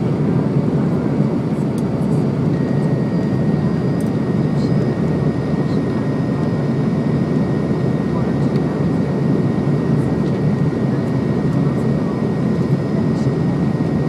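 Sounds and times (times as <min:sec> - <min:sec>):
jet engine rumble: 0:00.0 - 0:14.0
faint high whine: 0:00.5 - 0:08.0.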